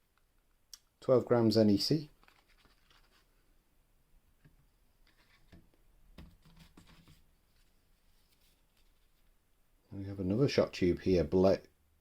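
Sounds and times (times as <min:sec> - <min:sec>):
faint knocks and rustles: 0:04.4 - 0:09.4.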